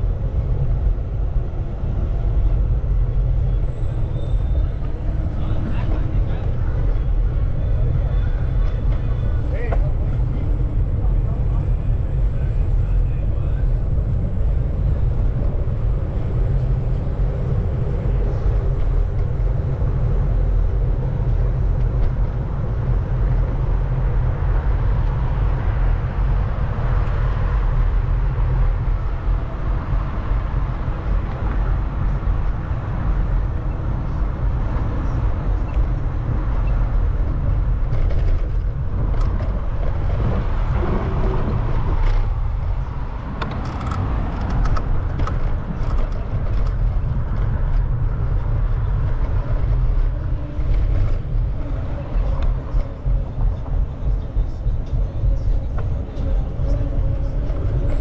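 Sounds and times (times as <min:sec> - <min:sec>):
bicycle road noise: 0:00.0 - 0:58.0
wind rumble on microphone: 0:00.0 - 0:58.0.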